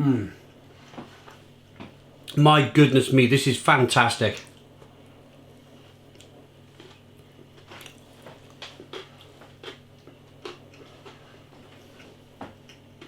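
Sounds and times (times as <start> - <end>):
low steady hum: 0.0 - 13.0
person chewing: 4.4 - 13.0.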